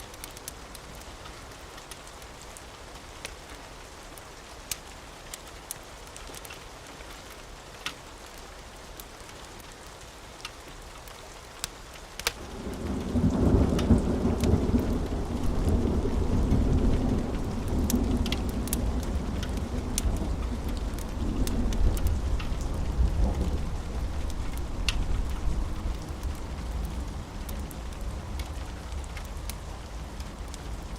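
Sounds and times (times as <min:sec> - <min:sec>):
steady rain: 0:00.0 - 0:30.9
rolling thunder: 0:12.4 - 0:30.9.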